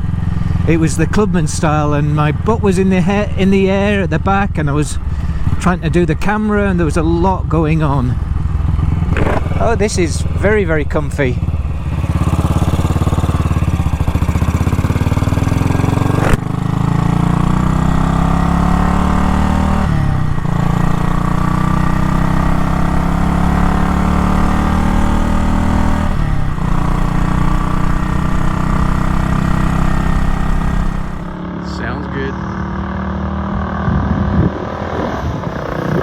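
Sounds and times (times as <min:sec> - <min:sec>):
motorcycle engine accelerating: 0:00.0 - 0:36.0
sharp crack: 0:09.0 - 0:09.8, 0:16.0 - 0:16.5.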